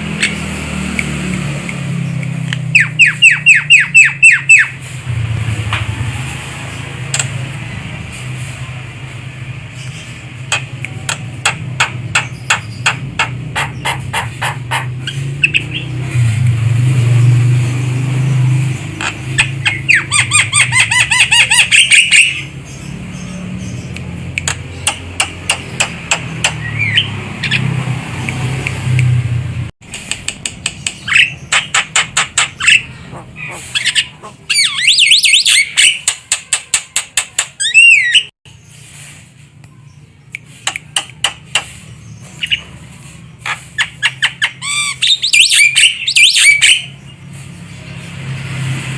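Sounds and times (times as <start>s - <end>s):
myna calling: 31.1s - 36.8s.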